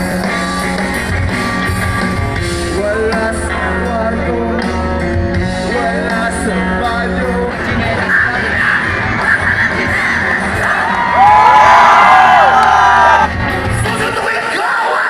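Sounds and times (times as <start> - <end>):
live rock band playing: 0.0 - 15.0
person singing: 2.5 - 11.4.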